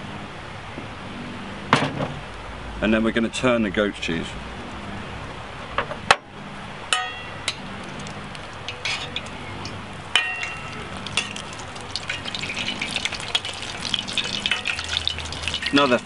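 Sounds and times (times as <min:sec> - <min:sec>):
cheese frying in oil: 0:07.4 - 0:16.0
metal spoon clinking on pan: 0:08.7 - 0:16.0.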